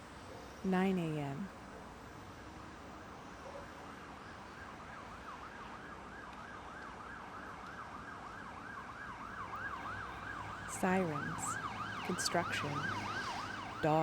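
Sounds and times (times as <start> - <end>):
city traffic hum: 0.0 - 14.0
emergency siren yelping: 4.5 - 14.0.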